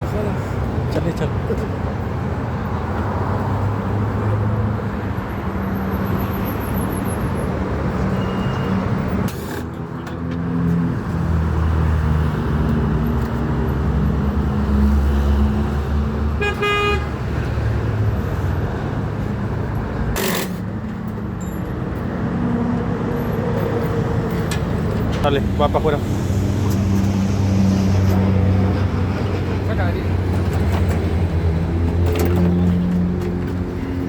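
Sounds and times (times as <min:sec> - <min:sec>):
horn toot: 0:16.4 - 0:17.2.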